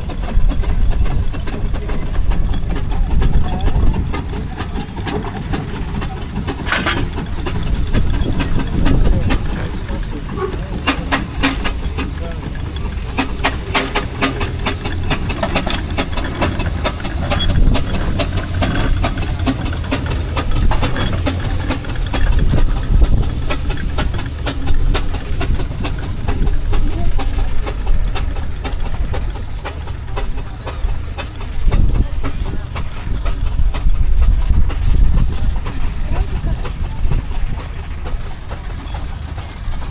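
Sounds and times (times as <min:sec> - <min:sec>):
sharp exhaust beats: 0:00.0 - 0:39.9
steam hissing: 0:00.0 - 0:39.9.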